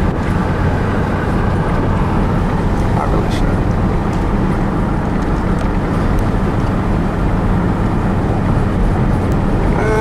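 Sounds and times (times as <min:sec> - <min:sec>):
truck cab road and engine rumble: 0:00.0 - 0:10.0.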